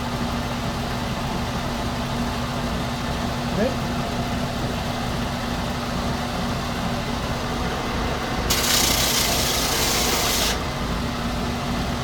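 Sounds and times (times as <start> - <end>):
power tool grinding glass edge: 8.5 - 10.7.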